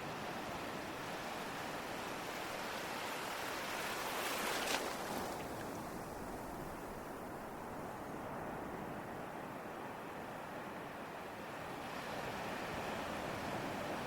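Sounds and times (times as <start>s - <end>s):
ocean waves breaking: 0.0s - 8.6s.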